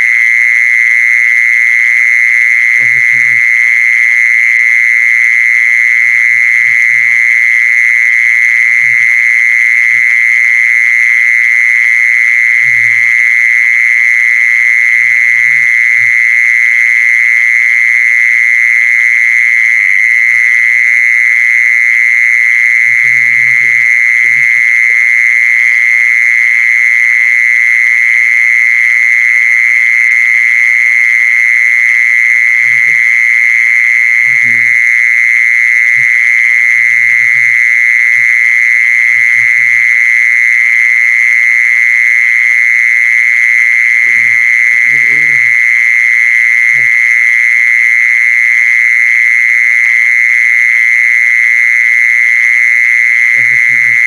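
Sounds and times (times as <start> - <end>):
high-pitched animal call: 22.9 - 25.1, 32.6 - 33.2, 34.2 - 34.8, 35.9 - 39.9, 43.9 - 45.8, 46.6 - 47.0, 53.2 - 54.0.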